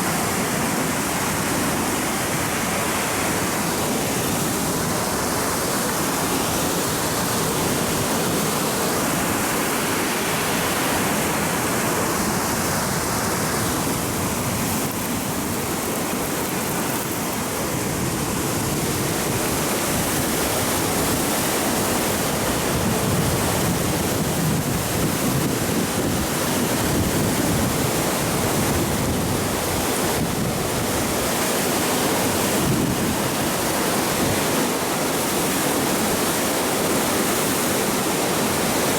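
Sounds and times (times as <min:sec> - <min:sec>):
rushing wind and water: 0:00.0 - 0:38.9
wind buffeting microphone: 0:12.2 - 0:34.6.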